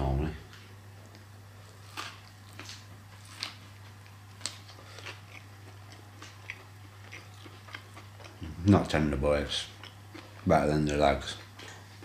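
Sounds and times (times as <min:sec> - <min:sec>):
person chewing: 0:01.1 - 0:08.6, 0:09.6 - 0:10.5.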